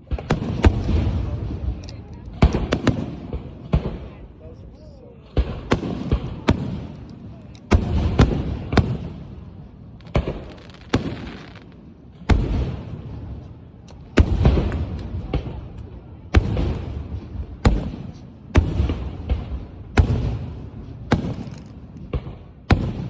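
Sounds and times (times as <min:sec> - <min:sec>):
fireworks bursting with loud bangs: 0:00.0 - 0:04.3, 0:05.2 - 0:23.0
rumbling crackling firework tail: 0:07.7 - 0:23.0.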